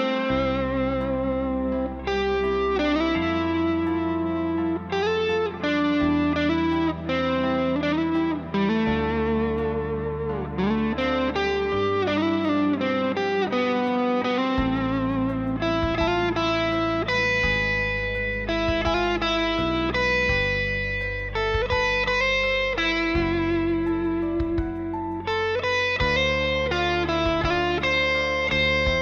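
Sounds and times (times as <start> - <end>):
electric guitar melody: 0.0 - 29.0
plucked guitar chords: 0.0 - 29.0.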